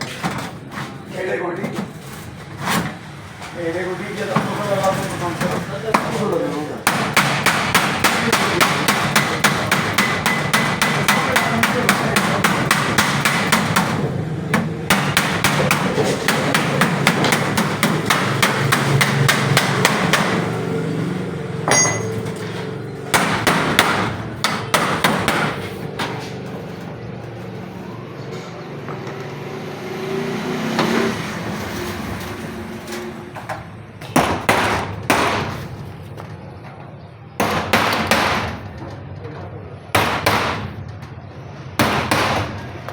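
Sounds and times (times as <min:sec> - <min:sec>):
hammer on sheet iron: 0:06.8 - 0:20.6, 0:21.7 - 0:22.3, 0:23.1 - 0:26.2, 0:34.0 - 0:35.8, 0:37.4 - 0:38.6, 0:40.0 - 0:40.8, 0:41.8 - 0:42.7.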